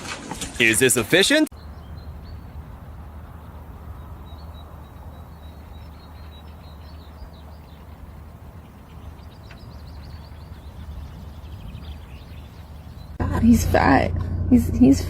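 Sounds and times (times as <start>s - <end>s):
small birds chirping: 1.5s - 13.2s
steady low rumble: 1.5s - 15.0s.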